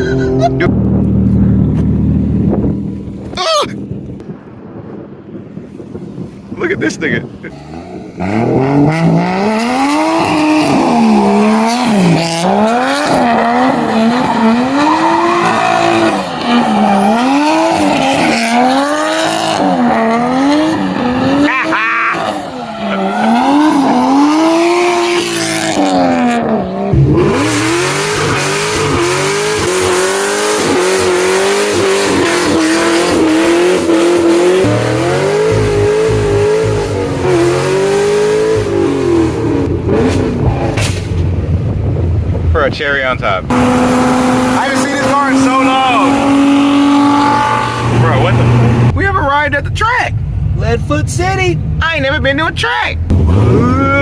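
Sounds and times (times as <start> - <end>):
car engine revving: 0.0 - 3.4, 7.3 - 52.2, 53.0 - 54.0
engine holding high revs: 43.5 - 48.9.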